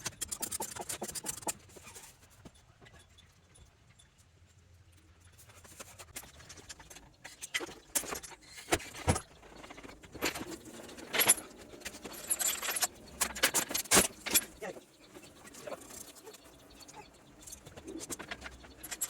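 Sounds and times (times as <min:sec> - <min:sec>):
metal tools clinking and rattling: 0:05.6 - 0:19.0.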